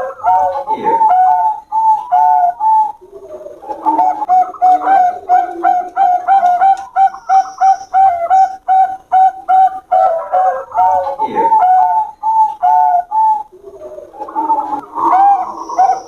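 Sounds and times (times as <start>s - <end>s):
doves cooing: 0.0s - 16.0s.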